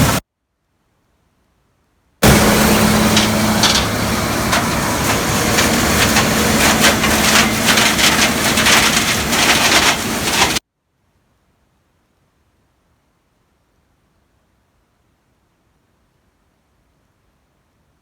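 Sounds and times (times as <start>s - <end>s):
combine harvester hum: 0.0s - 0.2s, 2.2s - 10.6s
crunching of corn stalks: 2.2s - 10.6s.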